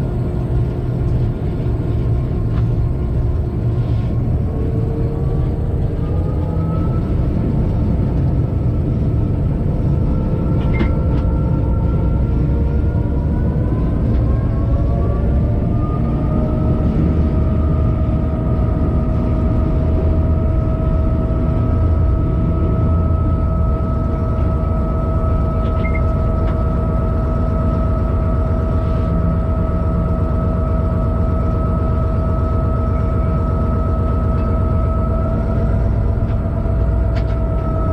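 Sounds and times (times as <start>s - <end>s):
locomotive engine rumble: 0.0s - 37.9s
steady whine: 0.0s - 37.9s.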